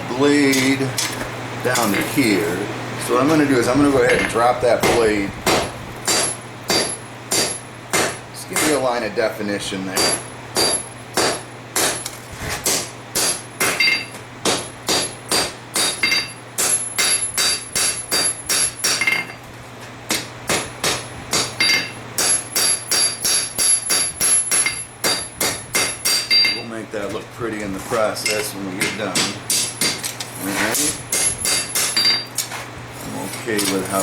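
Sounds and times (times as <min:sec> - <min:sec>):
hammer striking steel on anvil: 0:04.1 - 0:08.8, 0:10.0 - 0:12.1, 0:12.7 - 0:19.4, 0:20.1 - 0:26.6, 0:28.2 - 0:30.1, 0:30.7 - 0:32.3.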